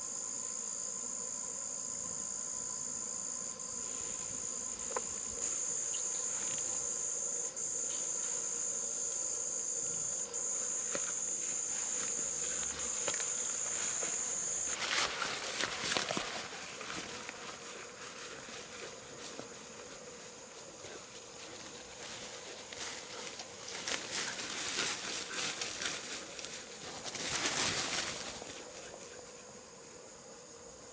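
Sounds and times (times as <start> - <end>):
insect trilling: 3.8 - 17.4
rustling and crackling: 10.6 - 28.8.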